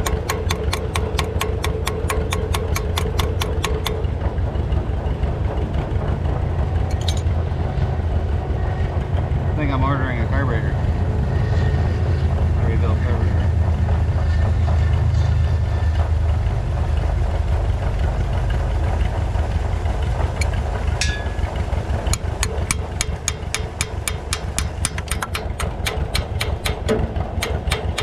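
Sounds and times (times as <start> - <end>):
sharp ticks: 0.0 - 4.0, 22.1 - 28.0
engine idling: 0.0 - 28.0.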